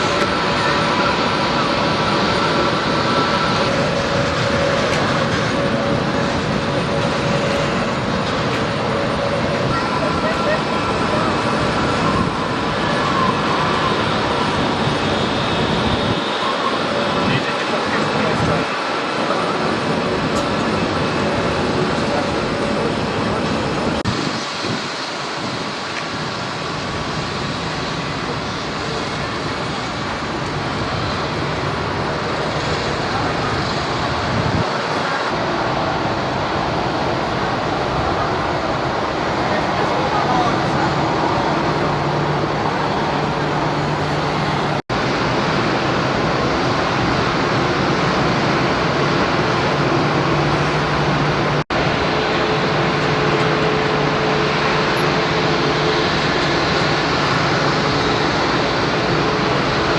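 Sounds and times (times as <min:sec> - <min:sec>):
jet engines running: 0:00.0 - 0:59.9.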